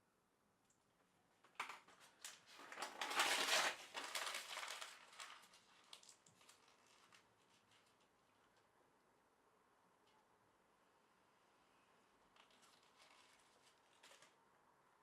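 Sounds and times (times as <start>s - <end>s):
rustling crinkling handling noise: 1.4s - 8.7s, 12.3s - 14.4s.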